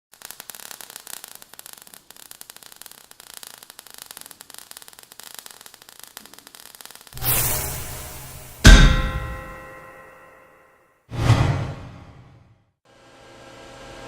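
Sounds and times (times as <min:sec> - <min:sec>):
crackling static hiss: 0:00.1 - 0:08.6.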